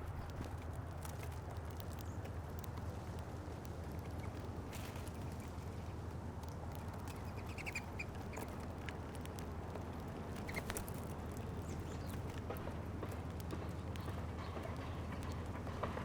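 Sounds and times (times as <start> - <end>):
birds pecking and hopping: 0.0 - 16.0
bird chirps: 7.1 - 8.5.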